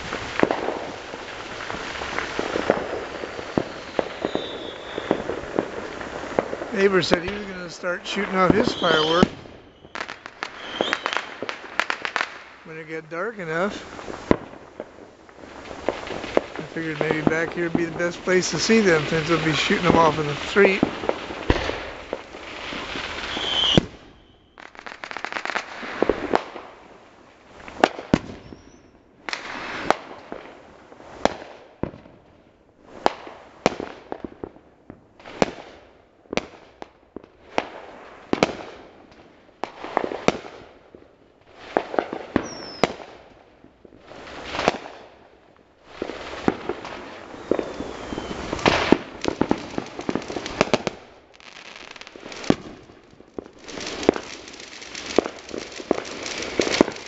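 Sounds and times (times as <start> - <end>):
aerial fireworks bangs: 0.0 - 24.9, 45.9 - 57.0.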